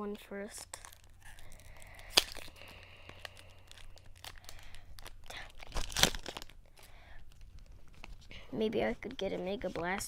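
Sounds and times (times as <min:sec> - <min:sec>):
foil wrapper tearing and crinkling: 0:00.6 - 0:08.2.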